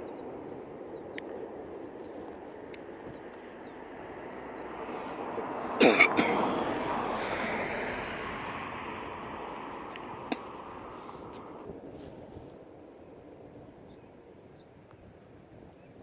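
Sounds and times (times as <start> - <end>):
aircraft passing by: 0.0 - 11.9.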